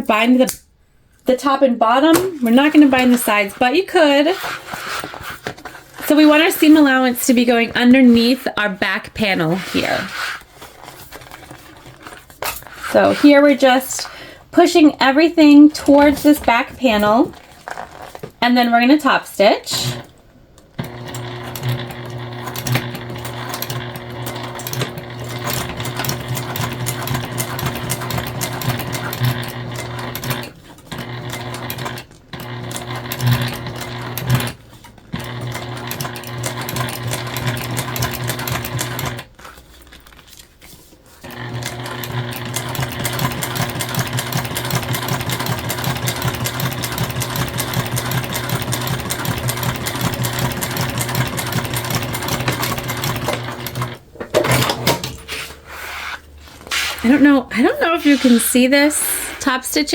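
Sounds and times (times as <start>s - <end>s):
sewing machine running: 2.1s - 5.4s, 19.7s - 20.1s, 20.8s - 39.4s, 41.2s - 55.1s.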